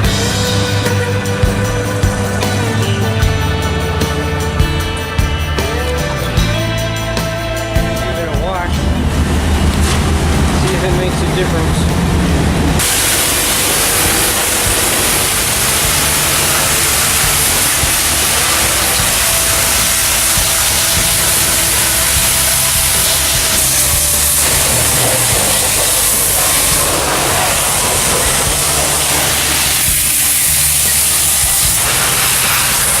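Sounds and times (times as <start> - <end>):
pressure washer spraying water: 0.0 - 6.1, 8.2 - 33.0
motor humming: 8.7 - 33.0.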